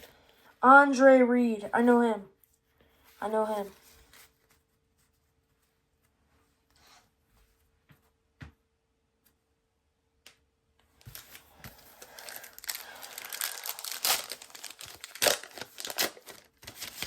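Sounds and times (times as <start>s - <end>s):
card pack wrapper crinkling and tearing: 11.0s - 17.0s.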